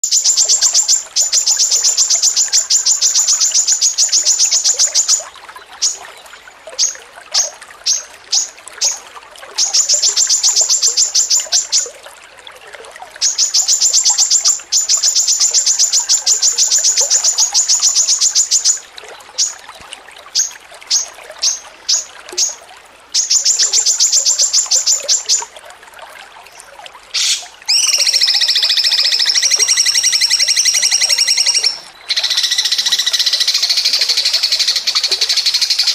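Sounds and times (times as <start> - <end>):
songbird chattering song: 0.0 - 9.0, 9.6 - 11.9, 13.2 - 19.7, 20.4 - 22.6, 23.2 - 25.5, 27.2 - 35.9
fuller bird call: 27.2 - 35.9.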